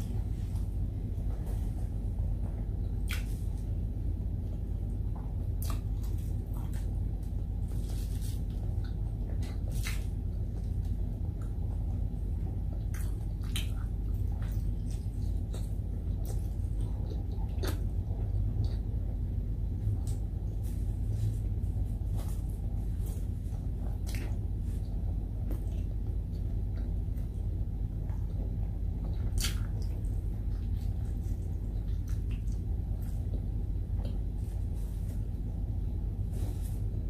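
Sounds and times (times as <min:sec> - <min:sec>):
steady low hum: 0:00.0 - 0:37.0
wet chewing and mouth smacks: 0:03.0 - 0:03.6, 0:05.6 - 0:07.0, 0:12.7 - 0:18.8, 0:23.9 - 0:27.4, 0:28.0 - 0:34.3.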